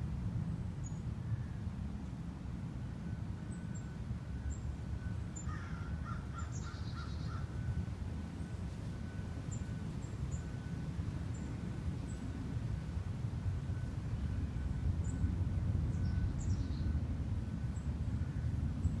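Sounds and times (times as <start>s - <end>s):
steady low outdoor rumble: 0.0s - 19.0s
wild birds calling: 5.4s - 7.5s.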